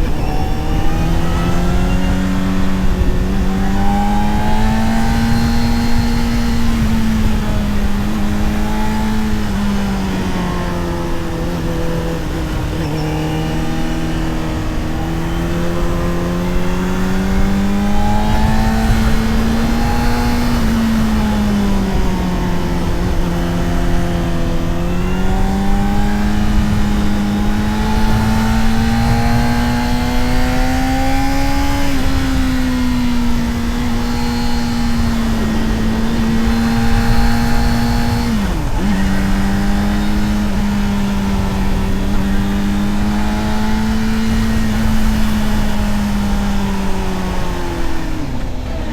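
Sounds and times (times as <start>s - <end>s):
motorcycle engine pulling: 0.0s - 48.9s
wind rushing over microphone: 0.0s - 48.9s.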